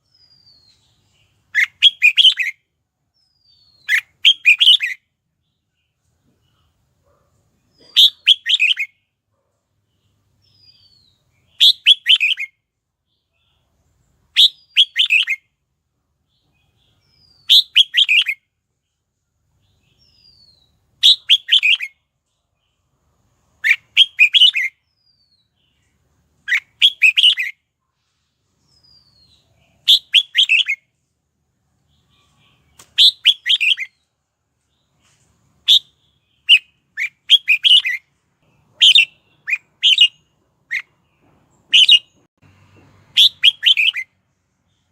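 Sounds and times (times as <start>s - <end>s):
bird singing short phrases: 0.0s - 2.6s, 3.2s - 6.7s, 7.6s - 9.0s, 9.9s - 13.7s, 14.3s - 15.5s, 16.3s - 18.4s, 19.6s - 22.0s, 23.6s - 27.5s, 28.6s - 30.8s, 31.9s - 34.1s, 35.6s - 41.0s, 41.6s - 42.3s, 43.2s - 44.0s.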